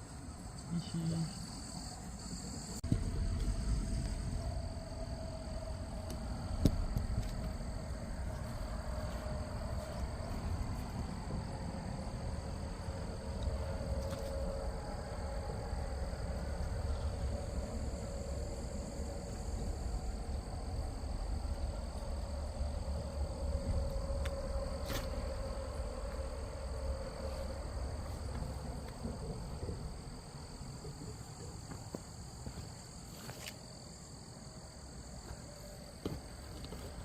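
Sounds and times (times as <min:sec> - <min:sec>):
insects trilling: 0:00.0 - 0:37.0
low rumble: 0:02.7 - 0:30.7.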